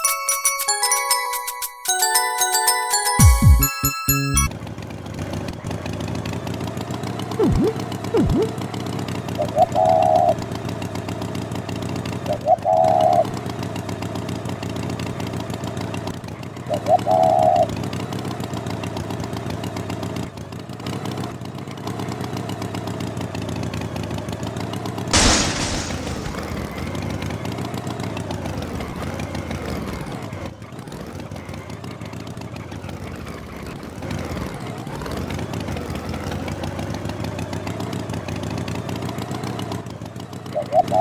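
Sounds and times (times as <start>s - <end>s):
engine running: 4.4s - 27.4s
loud engine burst: 7.4s - 8.8s, 25.1s - 27.5s.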